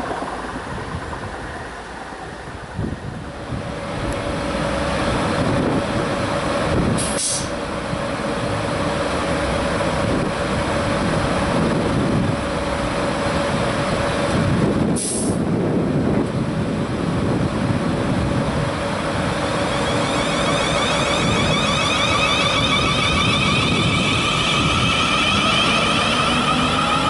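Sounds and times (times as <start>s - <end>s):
train electrical hum and rumble: 0.0s - 27.0s
air release hisses: 7.0s - 7.5s.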